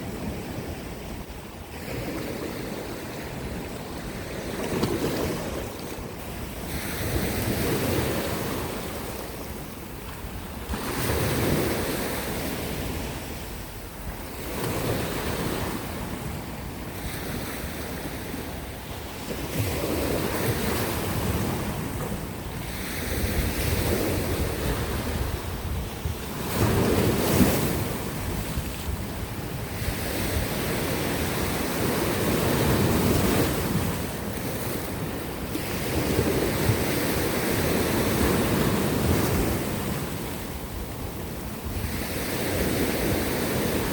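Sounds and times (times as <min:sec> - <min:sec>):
waves breaking against rocks: 0:00.3 - 0:13.2
wind buffeting microphone: 0:19.3 - 0:43.9.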